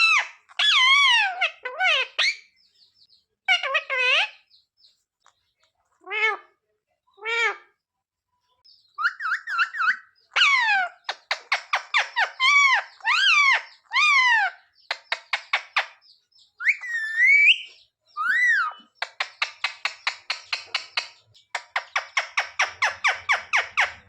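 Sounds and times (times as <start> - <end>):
parrot squawking and whistling: 9.0 - 10.9, 16.6 - 18.9
parrot clicking chatter: 18.3 - 24.0.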